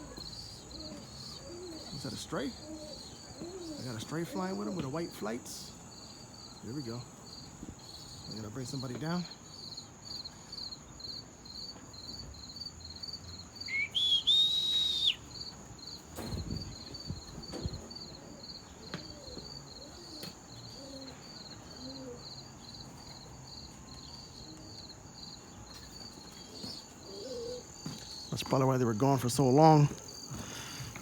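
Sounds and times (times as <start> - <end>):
crickets chirping: 0.0 - 31.0
loud rising whistle: 13.7 - 15.2.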